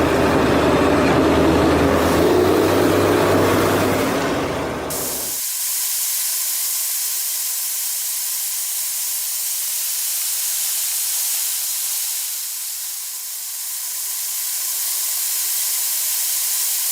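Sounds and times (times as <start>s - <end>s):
steady high hiss: 4.9s - 16.9s.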